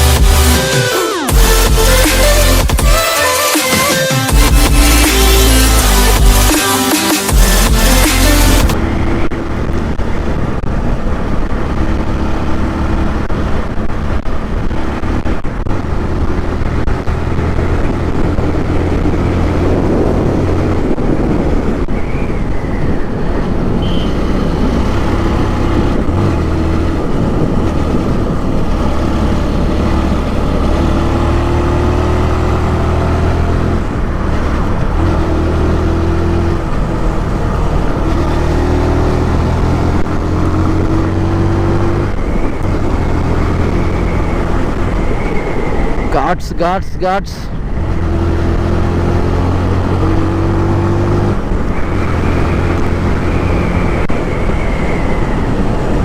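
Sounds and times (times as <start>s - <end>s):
motorcycle engine running: 0.0s - 3.2s, 4.2s - 22.0s
wind rush on microphone: 8.7s - 56.0s.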